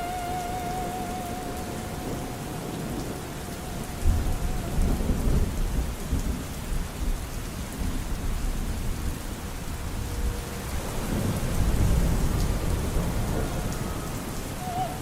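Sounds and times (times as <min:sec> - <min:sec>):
steady rain falling: 0:00.0 - 0:15.0
thunder rumbling: 0:00.0 - 0:15.0.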